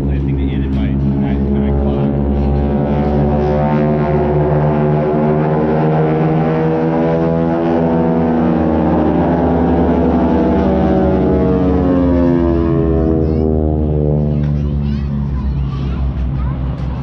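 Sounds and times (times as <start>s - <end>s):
aircraft engine droning: 0.0s - 17.0s.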